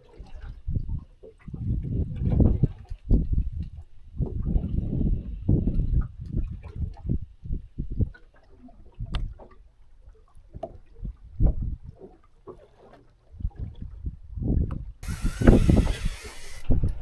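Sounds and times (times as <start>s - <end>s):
low knocks and thumps on boat: 0.3s - 8.2s, 10.4s - 12.8s
sharp click: 15.0s - 16.7s.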